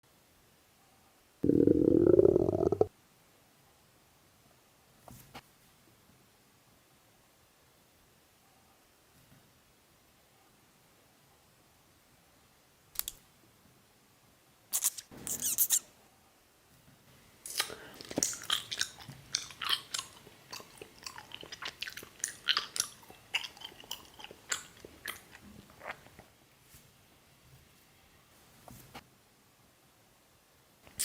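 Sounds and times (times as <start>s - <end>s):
crunchy bite of food: 17.5s - 26.1s
wet chewing smacks: 17.5s - 26.3s.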